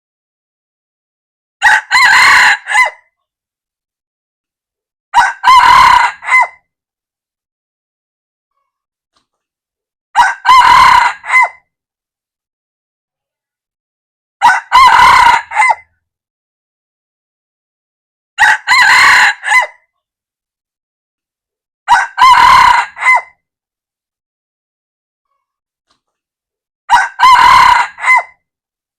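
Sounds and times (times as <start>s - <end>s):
rooster crowing: 1.6s - 3.0s, 5.2s - 6.6s, 10.2s - 11.6s, 14.4s - 15.9s, 18.4s - 19.8s, 21.9s - 23.4s, 26.9s - 28.4s.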